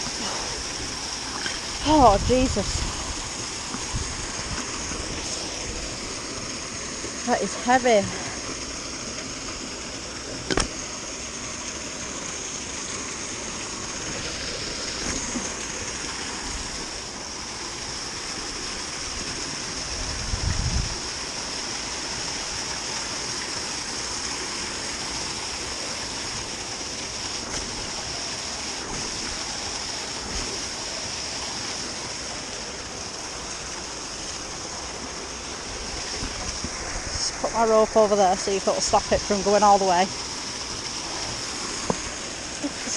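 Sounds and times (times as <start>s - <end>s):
running water rushing: 0.0s - 42.9s.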